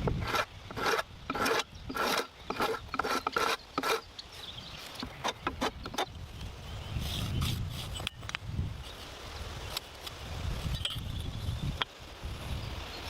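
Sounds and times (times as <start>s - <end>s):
hand tool rasping wood: 0.0s - 4.1s, 4.9s - 6.1s.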